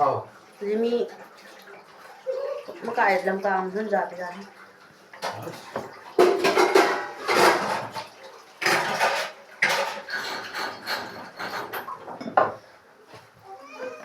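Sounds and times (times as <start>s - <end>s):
dishes and cutlery clattering: 5.1s - 12.6s.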